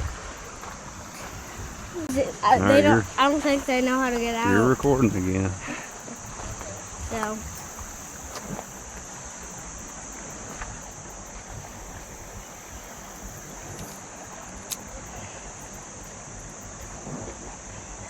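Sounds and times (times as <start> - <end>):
crickets droning: 0.0 - 18.0
flowing water: 0.0 - 18.0
wind rumble: 0.0 - 18.0
sharp click: 14.7 - 14.9.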